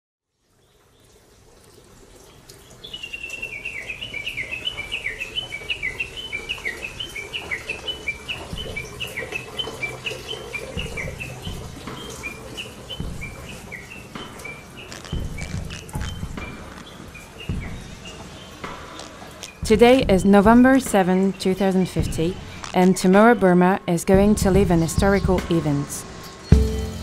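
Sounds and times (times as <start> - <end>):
bird chirping: 2.7 - 23.2.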